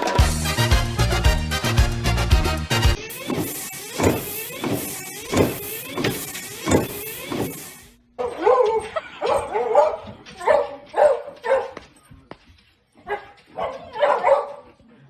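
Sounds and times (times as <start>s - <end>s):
dog barking: 8.2s - 11.8s, 13.0s - 14.8s.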